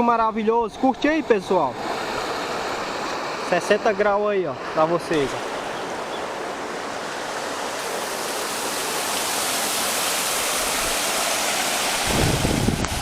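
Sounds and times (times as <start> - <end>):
water rushing out of drain: 7.0 - 13.0.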